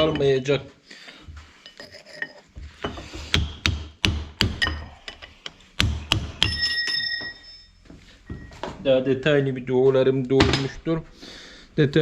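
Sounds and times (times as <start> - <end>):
hammer striking metal: 3.3 - 7.6.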